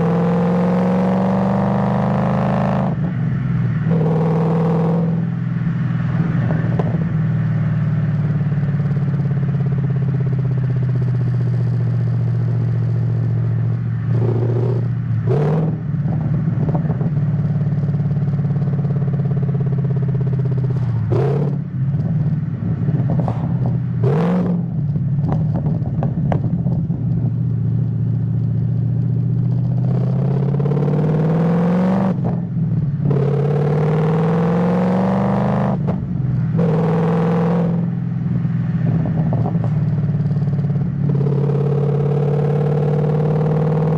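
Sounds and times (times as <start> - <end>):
car engine accelerating: 0.0 - 43.9.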